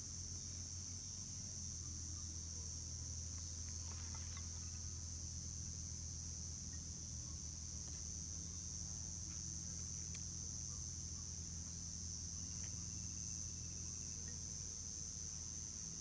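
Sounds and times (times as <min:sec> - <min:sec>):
insects chirring: 0:03.2 - 0:16.0.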